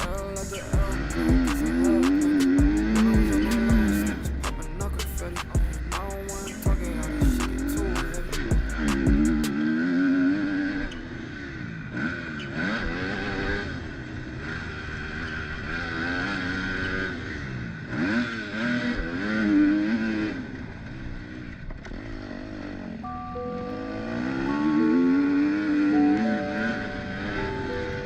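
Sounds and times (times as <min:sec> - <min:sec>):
motocross engine revving: 0:00.0 - 0:05.3, 0:06.0 - 0:23.0.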